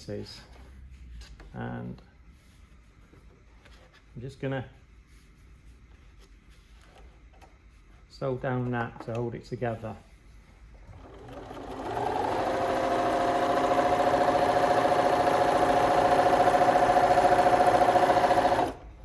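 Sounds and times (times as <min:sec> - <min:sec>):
sewing machine stitching: 0:10.8 - 0:19.0.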